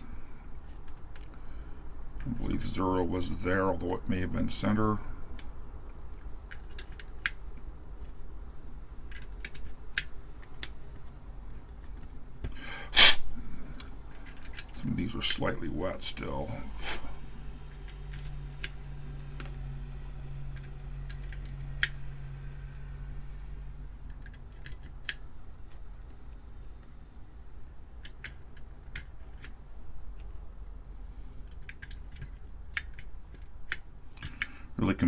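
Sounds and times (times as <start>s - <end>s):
keycaps clicking: 9.0s - 10.8s, 27.9s - 30.4s, 31.4s - 34.6s.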